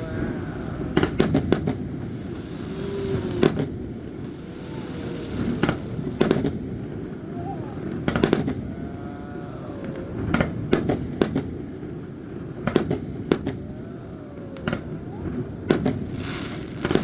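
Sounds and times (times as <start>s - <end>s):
firework shells bursting: 0.9s - 8.8s, 10.3s - 13.8s.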